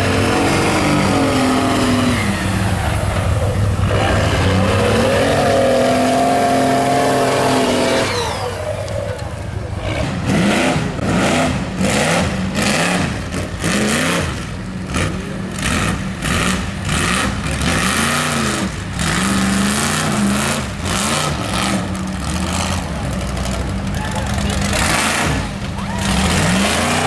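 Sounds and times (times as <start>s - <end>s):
truck engine revving hard: 0.0s - 27.0s.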